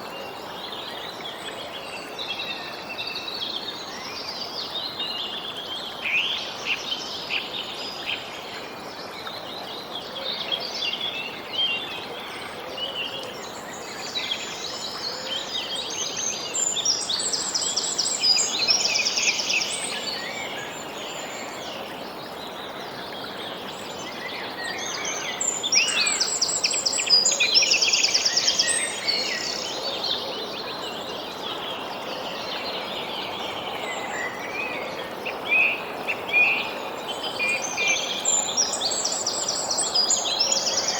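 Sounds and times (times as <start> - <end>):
steady background hiss: 0.0 - 40.9
birds singing and calling: 9.2 - 40.9.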